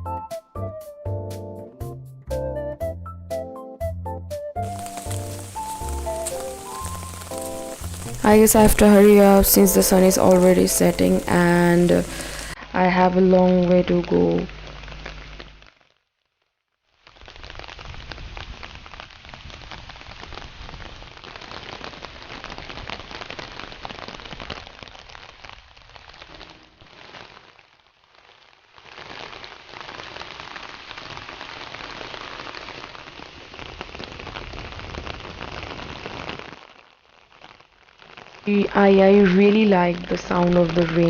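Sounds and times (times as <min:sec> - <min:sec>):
rain falling: 0:04.6 - 0:12.6, 0:17.0 - 0:41.0.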